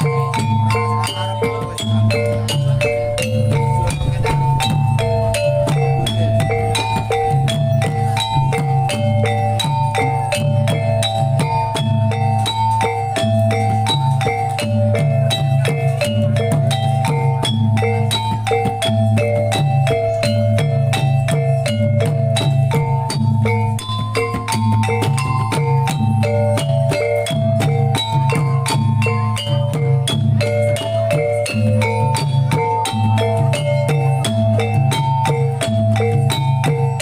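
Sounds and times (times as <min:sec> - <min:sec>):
tuned metal percussion melody: 0:00.0 - 0:37.0
low drum pulse: 0:02.2 - 0:09.5.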